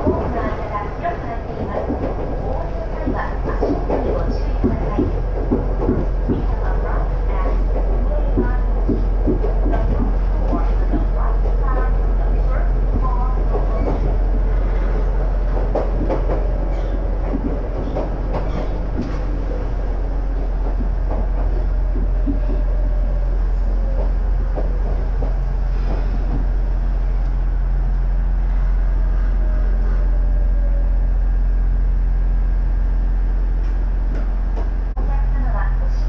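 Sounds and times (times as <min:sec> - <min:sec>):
wheels clacking over rail joints: 0:00.0 - 0:26.6
railcar interior hum: 0:00.0 - 0:36.0.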